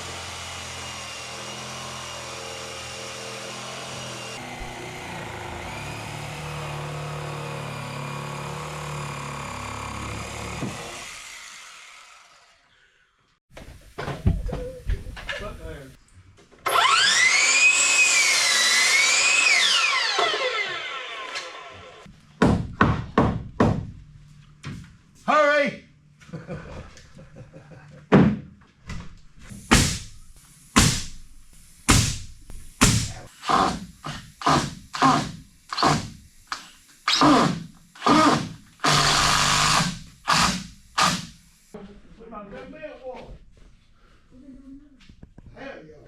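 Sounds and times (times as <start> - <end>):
power tool motor whining: 0.0 - 12.6, 16.7 - 22.1, 32.6 - 41.8
sharp knock: 29.7 - 30.1, 30.8 - 31.1, 31.9 - 33.2.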